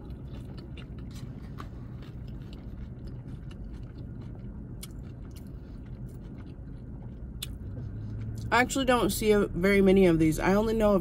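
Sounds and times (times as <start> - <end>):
person chewing: 0.0 - 8.5
steady low hum: 0.0 - 11.0.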